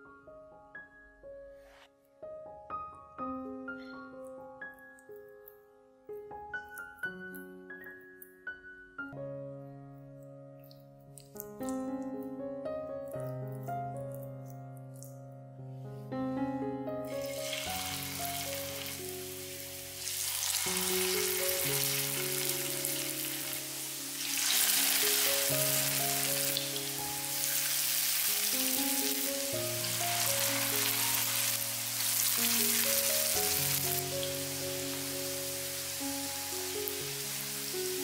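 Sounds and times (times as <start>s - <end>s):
soft piano music: 0.0s - 38.0s
fritters sizzling in oil: 17.2s - 38.0s.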